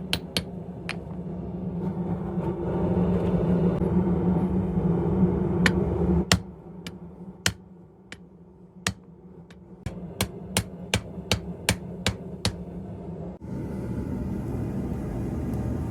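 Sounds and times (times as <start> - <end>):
hammer striking anvil: 0.0 - 1.0, 5.7 - 6.5, 9.9 - 12.6
machine drone with hum: 0.0 - 15.9.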